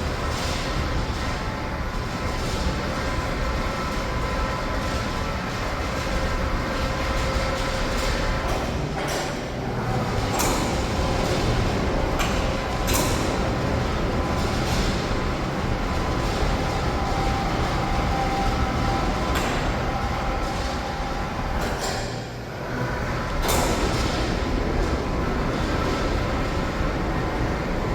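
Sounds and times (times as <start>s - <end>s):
steel wheels rumbling on rail: 0.0s - 27.9s.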